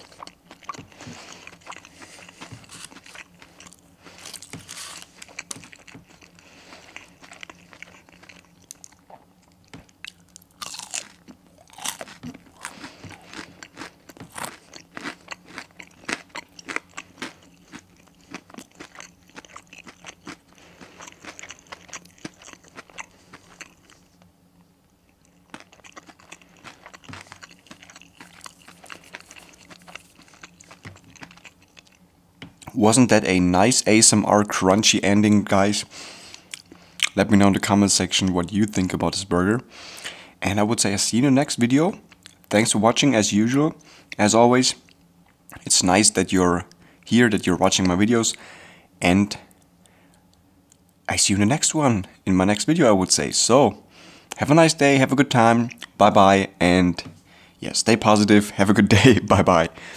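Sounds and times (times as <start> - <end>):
chewing crunchy fried chicken: 0.0 - 32.8, 35.5 - 39.0, 41.6 - 42.6, 44.8 - 45.9, 49.3 - 51.1.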